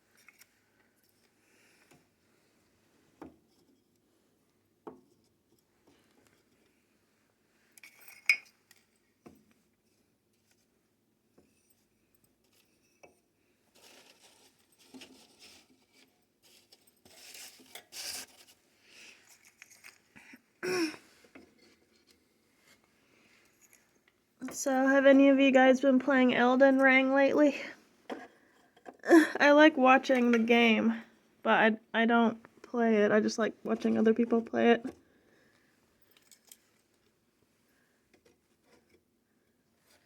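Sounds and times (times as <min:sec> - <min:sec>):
rustling and scraping: 0:13.7 - 0:20.2.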